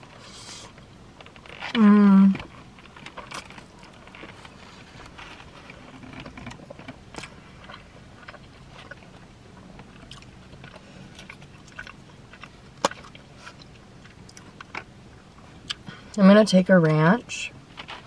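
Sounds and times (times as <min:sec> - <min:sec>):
person chewing: 0:02.5 - 0:16.0.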